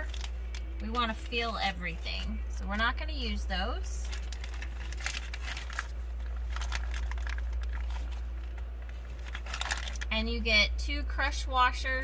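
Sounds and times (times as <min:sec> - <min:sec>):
packaging rustling: 0:00.0 - 0:02.8, 0:03.9 - 0:10.1
steady low hum: 0:00.0 - 0:12.0.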